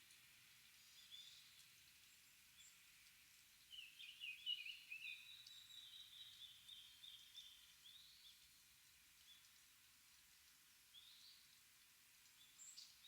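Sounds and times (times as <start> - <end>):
faint background hiss: 0.0 - 13.0
small birds chirping: 3.6 - 9.6.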